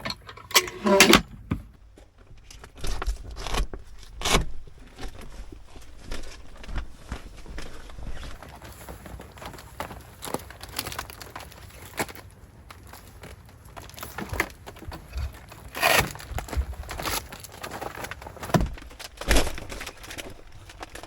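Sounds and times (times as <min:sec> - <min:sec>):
handling knocks and clicks: 0:00.0 - 0:06.9
rustling: 0:00.0 - 0:21.0.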